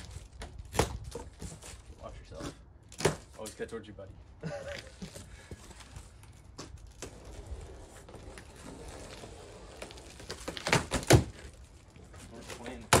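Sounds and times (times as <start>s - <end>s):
cardboard scraping and rustling: 5.6s - 13.0s.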